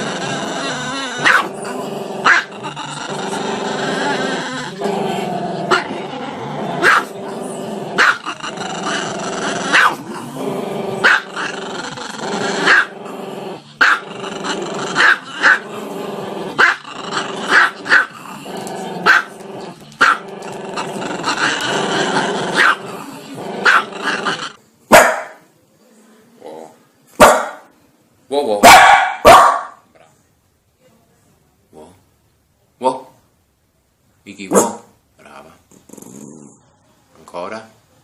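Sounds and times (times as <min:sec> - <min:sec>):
small dog growling: 0:00.0 - 0:24.6, 0:35.2 - 0:36.7
dog barking sharply: 0:24.9 - 0:25.4, 0:27.2 - 0:27.6, 0:28.6 - 0:29.8, 0:34.5 - 0:34.9.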